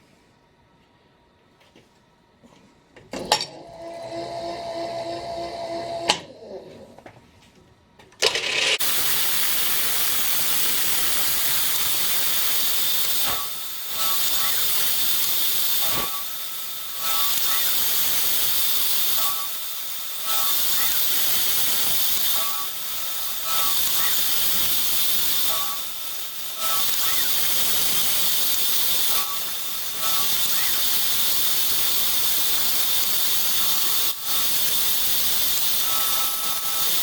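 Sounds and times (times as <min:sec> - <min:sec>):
milling machine cutting steel: 0:08.2 - 0:37.0
faint cutting whine: 0:08.3 - 0:37.0
loud steady hiss: 0:08.7 - 0:37.0.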